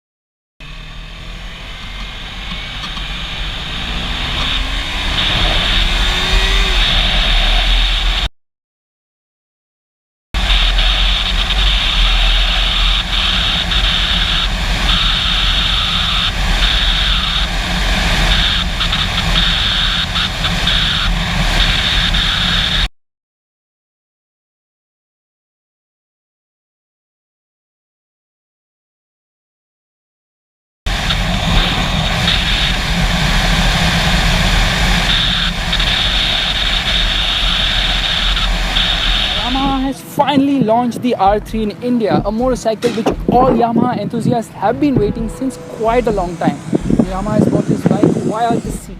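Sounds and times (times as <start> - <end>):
motorcycle engine running: 0.6 - 8.2, 10.4 - 22.9, 30.9 - 48.9
wind noise on microphone: 1.8 - 8.3, 10.4 - 22.9, 30.9 - 48.9.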